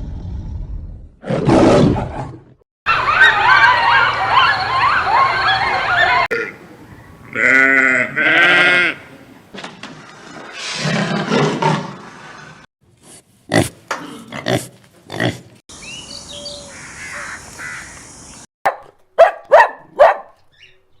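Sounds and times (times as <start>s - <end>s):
loud barking calls: 16.3s - 20.3s.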